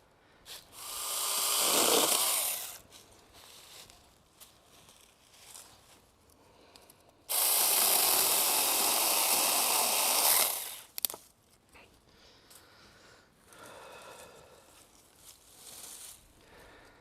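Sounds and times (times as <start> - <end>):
electric chainsaw cutting wood: 0.8 - 2.8, 7.3 - 11.0.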